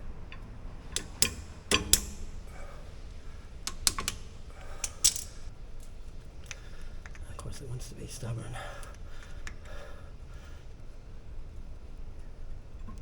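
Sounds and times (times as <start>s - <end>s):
sharp metal clicks and taps: 0.3s - 2.5s, 3.6s - 7.2s.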